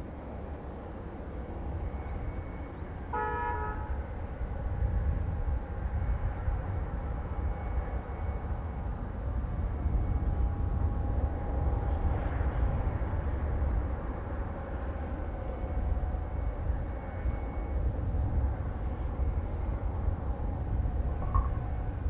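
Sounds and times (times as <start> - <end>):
distant aircraft engine: 0.0 - 22.0
wind rumbling on microphone: 0.0 - 22.0
short horn toot: 3.1 - 4.0.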